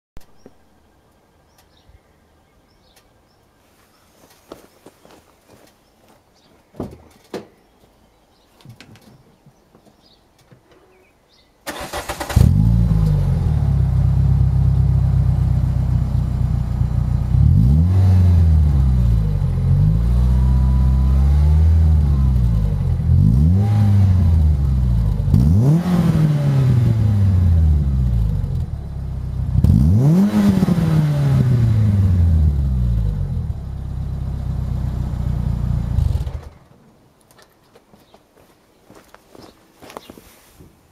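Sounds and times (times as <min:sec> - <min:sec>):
car engine starting and revving: 0:11.6 - 0:36.6.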